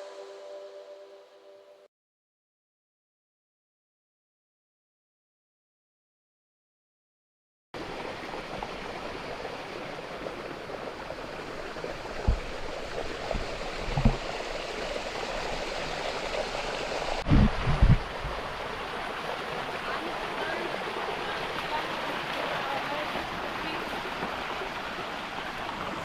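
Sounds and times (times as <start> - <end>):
stream rushing over rocks: 7.8 - 26.0.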